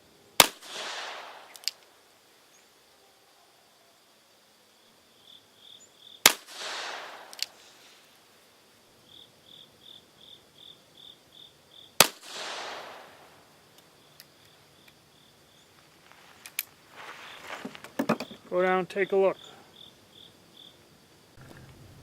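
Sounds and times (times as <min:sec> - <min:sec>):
insects chirping: 0:00.0 - 0:22.0
revolver gunshots with echo: 0:00.4 - 0:01.7, 0:06.3 - 0:07.6, 0:12.0 - 0:13.4.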